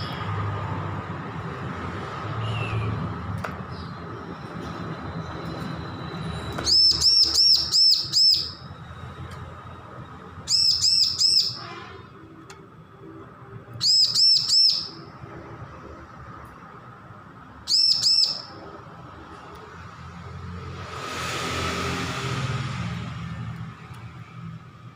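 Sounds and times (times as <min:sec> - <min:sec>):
bird song high arched notes: 0:06.6 - 0:08.7, 0:10.4 - 0:11.7, 0:13.8 - 0:15.0, 0:17.7 - 0:18.6.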